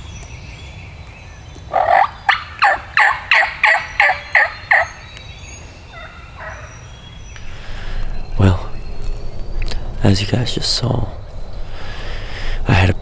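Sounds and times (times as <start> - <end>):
turkey hen yelping: 1.6 - 5.1, 5.9 - 6.9.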